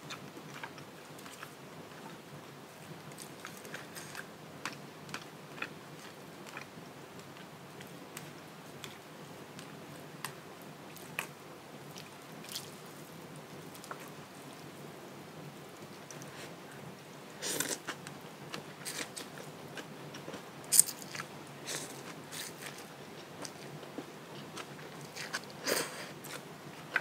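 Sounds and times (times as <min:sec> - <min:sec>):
person chewing noodle soup: 0:00.1 - 0:01.6, 0:03.4 - 0:06.7, 0:17.4 - 0:27.0.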